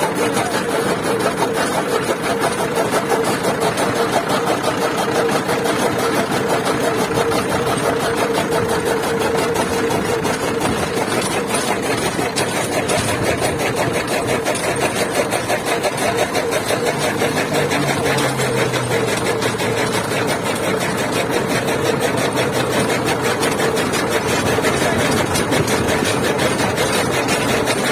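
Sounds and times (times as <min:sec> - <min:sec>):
chaff cutter clatter: 0:00.0 - 0:27.9
tractor diesel engine running: 0:00.0 - 0:27.9.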